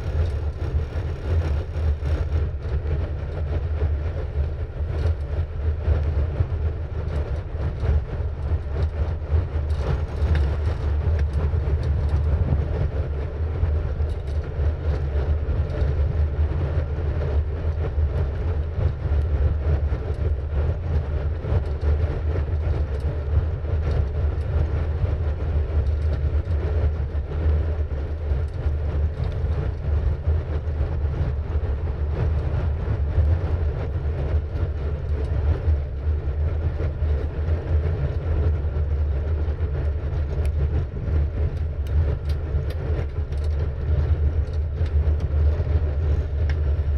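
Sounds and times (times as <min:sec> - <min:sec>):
wind buffeting microphone: 0:00.0 - 0:46.9.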